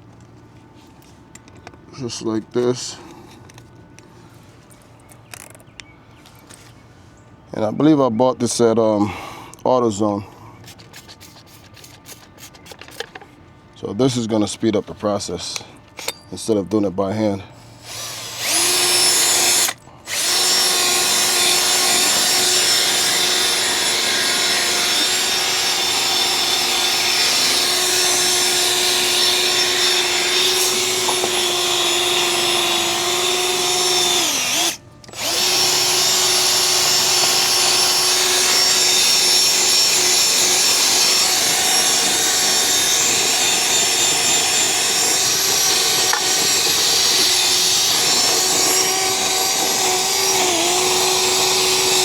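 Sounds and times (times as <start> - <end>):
electric drill spinning: 17.8 - 52.0.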